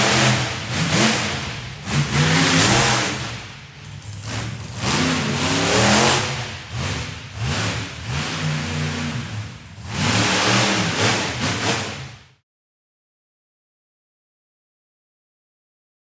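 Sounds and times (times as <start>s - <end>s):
monster truck engine revving: 0.0s - 12.3s.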